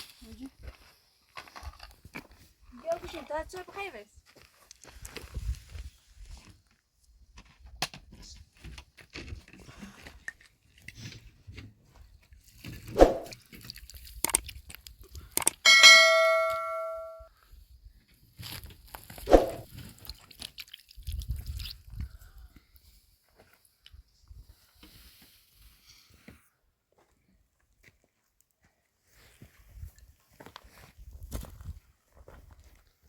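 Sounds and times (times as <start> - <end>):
ringing metallic strike: 15.7 - 17.2.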